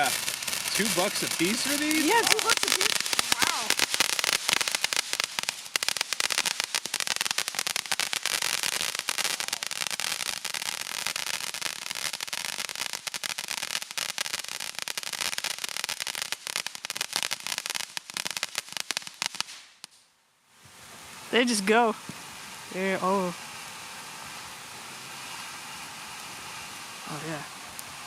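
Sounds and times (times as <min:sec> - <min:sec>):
firework crackling: 0:00.0 - 0:28.0.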